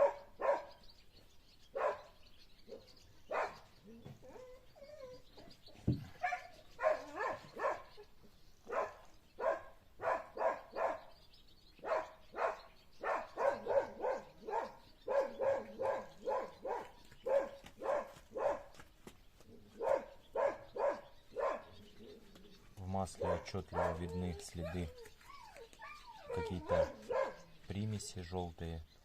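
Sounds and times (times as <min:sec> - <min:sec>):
dog barking: 0:00.0 - 0:00.8, 0:01.7 - 0:03.7, 0:06.2 - 0:08.0, 0:08.7 - 0:11.2, 0:11.8 - 0:18.7, 0:19.8 - 0:21.8, 0:23.2 - 0:24.9, 0:26.2 - 0:27.6.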